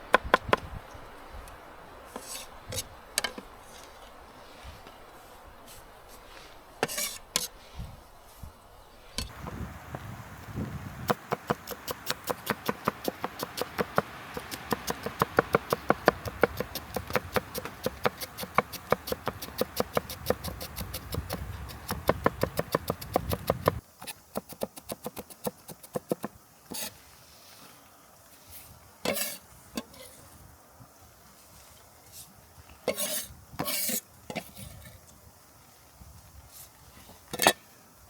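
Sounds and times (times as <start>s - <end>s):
knife chopping on wooden board: 11.1s - 23.8s.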